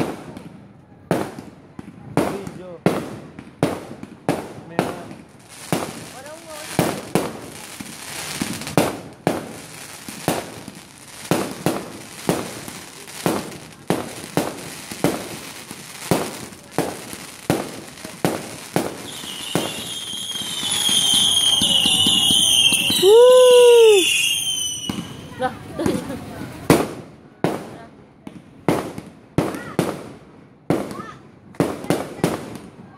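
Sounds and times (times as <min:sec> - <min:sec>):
fireworks banging: 0:00.0 - 0:32.9
high warbling whistles: 0:19.1 - 0:25.3
loud rising and falling whistle: 0:19.1 - 0:25.3.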